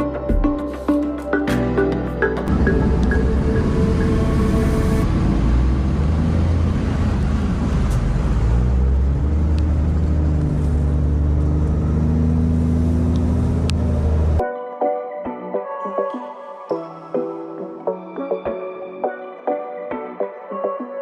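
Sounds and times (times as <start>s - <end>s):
background music: 0.0s - 5.1s, 14.4s - 21.0s
truck diesel engine rumbling: 2.2s - 14.4s.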